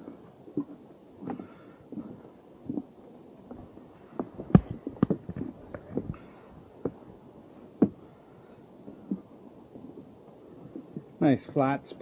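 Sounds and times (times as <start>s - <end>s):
footsteps on wooden boardwalk: 0.0s - 8.2s
heavy thumps: 4.2s - 7.1s, 7.8s - 8.1s.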